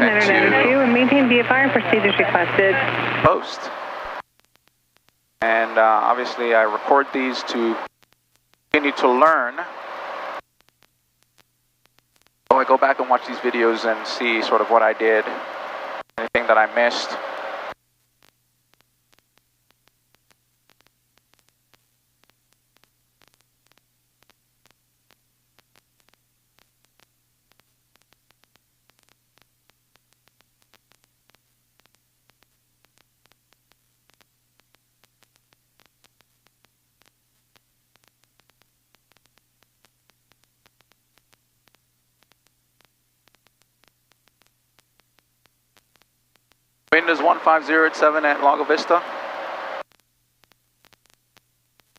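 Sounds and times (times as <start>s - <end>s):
faint low hum: 0.0s - 51.9s
faint static clicks: 0.0s - 51.9s.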